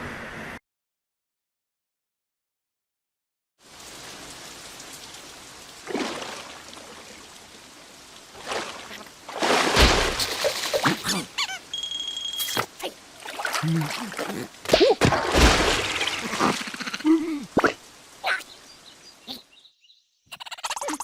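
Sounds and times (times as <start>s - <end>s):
rain falling: 3.6s - 19.6s
short pitched squeaks: 11.1s - 12.7s
steady high beep: 11.7s - 12.6s.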